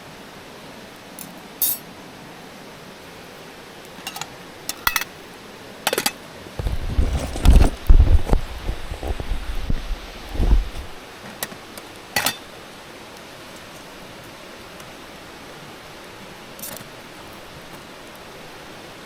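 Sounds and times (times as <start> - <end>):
steady background hiss: 0.0 - 19.0
light metal clinks: 1.6 - 1.8
heavy knocks and thumps: 6.6 - 11.0.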